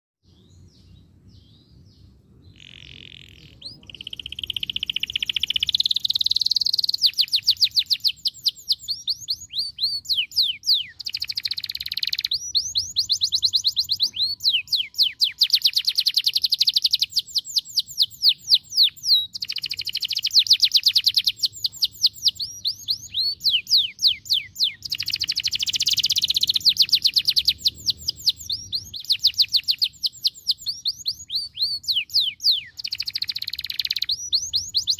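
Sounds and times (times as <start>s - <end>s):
canary song trills: 0.2s - 34.9s.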